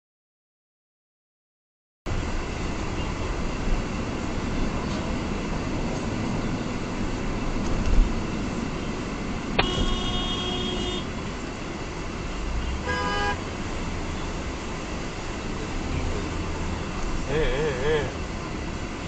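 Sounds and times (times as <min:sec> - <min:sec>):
road noise inside moving car: 0:02.1 - 0:19.0
car horn honking: 0:09.6 - 0:11.2, 0:12.6 - 0:13.5.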